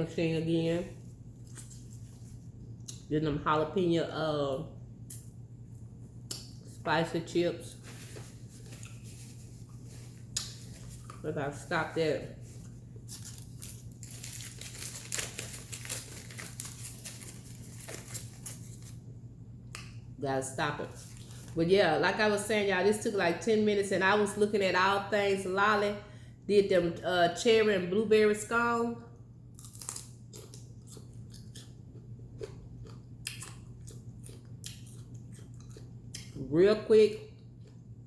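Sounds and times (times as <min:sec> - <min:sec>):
steady low hum: 0:00.0 - 0:38.0
chewing and mouth noises: 0:29.6 - 0:36.4.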